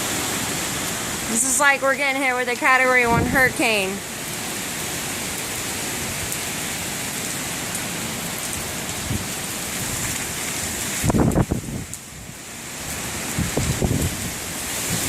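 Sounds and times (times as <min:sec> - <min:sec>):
hurricane wind and rain: 0:00.0 - 0:15.0
wind buffeting microphone: 0:03.0 - 0:03.9, 0:09.0 - 0:15.0.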